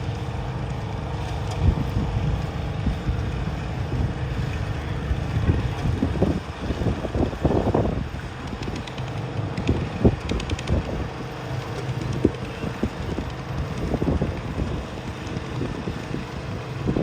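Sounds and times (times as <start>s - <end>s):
garden tractor engine running: 0.0s - 17.0s
wind buffeting microphone: 0.0s - 17.0s.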